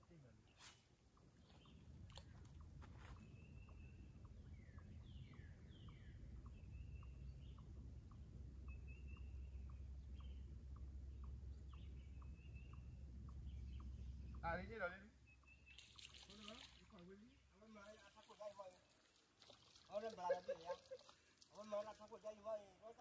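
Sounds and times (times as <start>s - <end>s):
songbirds whistling: 0.6s - 14.5s
faint steady ticking: 1.1s - 15.6s
low wind rumble: 1.4s - 15.7s.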